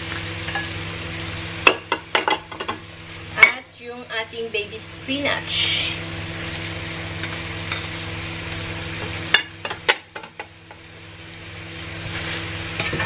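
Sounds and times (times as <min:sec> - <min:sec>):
spinach sizzling in a wok: 0:00.0 - 0:13.0
steady low hum: 0:00.0 - 0:13.0.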